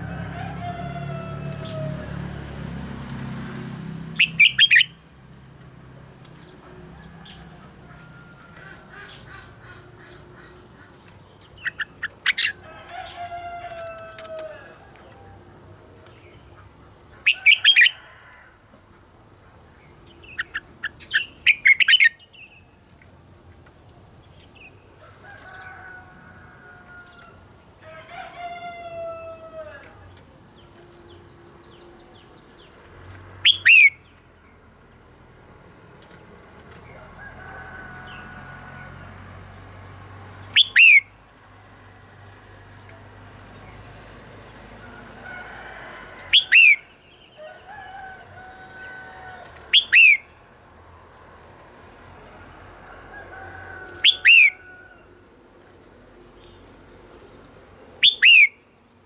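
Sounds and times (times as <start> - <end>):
bird whistled warbling: 4.2 - 5.0, 40.5 - 41.0, 49.8 - 50.2, 58.0 - 58.6.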